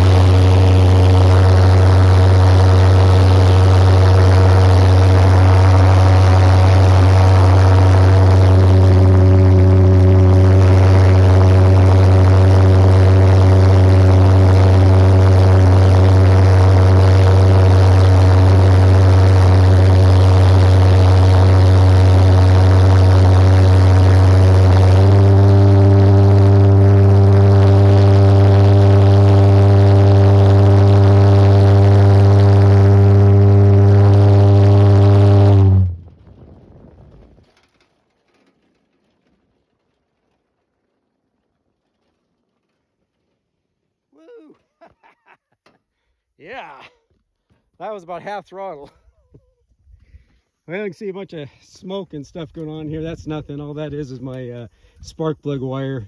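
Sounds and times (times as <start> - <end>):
pulse jet engine droning: 0.0 - 38.7.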